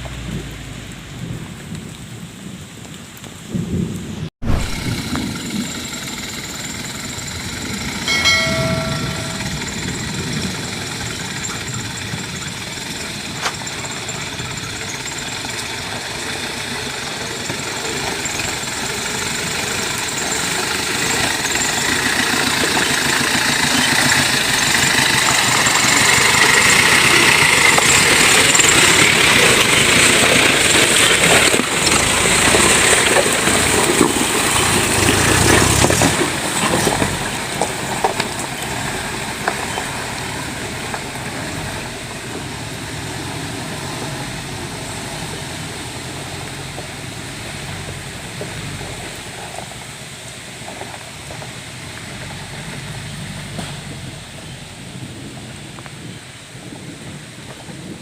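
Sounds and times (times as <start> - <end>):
vehicle engine running: 4.4 - 56.2
brief pitched tone: 7.4 - 12.1.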